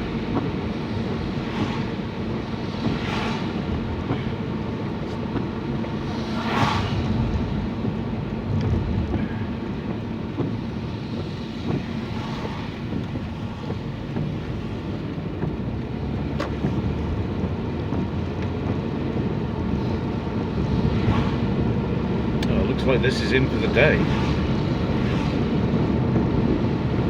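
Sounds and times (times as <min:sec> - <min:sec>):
engine and tyre rumble: 0:00.0 - 0:27.0
wet road hiss: 0:00.1 - 0:08.4, 0:09.2 - 0:15.3, 0:19.0 - 0:27.0
swishes of spray: 0:01.3 - 0:03.7, 0:05.8 - 0:07.6, 0:19.8 - 0:21.6, 0:23.9 - 0:25.8.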